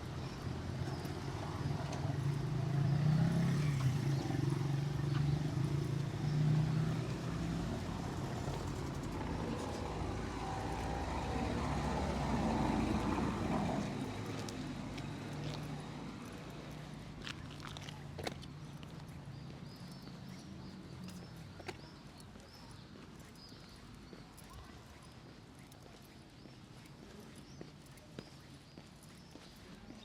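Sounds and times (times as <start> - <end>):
vehicles driving past: 0.0 - 22.1.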